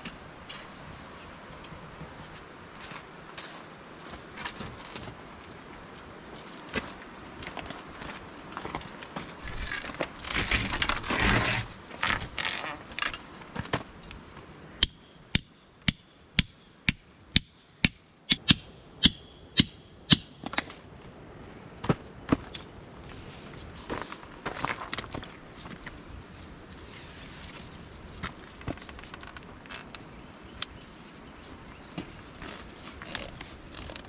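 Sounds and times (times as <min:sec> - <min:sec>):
rustling and handling noise: 0:06.2 - 0:14.6, 0:22.4 - 0:30.1
hammer striking tent pegs: 0:14.8 - 0:20.6.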